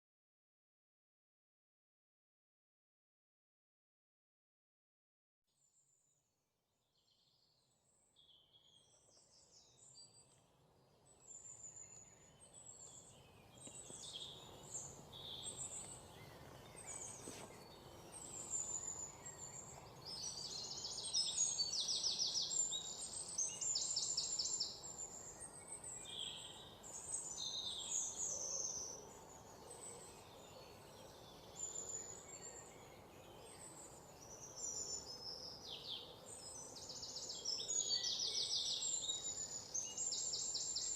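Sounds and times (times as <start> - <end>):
soft steady hiss: 8.3 - 40.9
birds chirping: 11.2 - 40.9.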